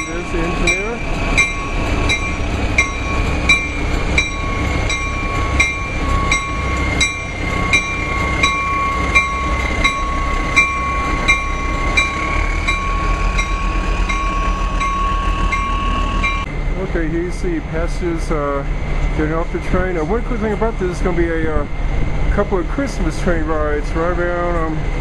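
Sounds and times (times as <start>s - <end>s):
ringing strike: 0.0s - 16.5s
diesel locomotive idling: 0.0s - 25.0s.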